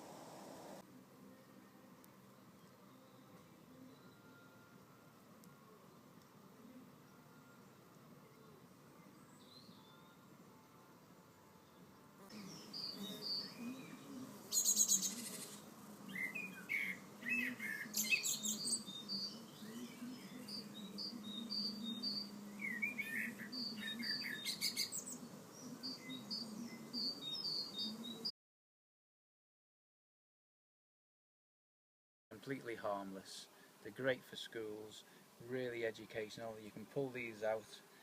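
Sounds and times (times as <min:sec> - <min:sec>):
bees buzzing: 0:00.0 - 0:00.8, 0:12.2 - 0:28.2
birds chirping: 0:05.8 - 0:28.3, 0:32.5 - 0:38.0
bird rattling trills: 0:14.5 - 0:15.7.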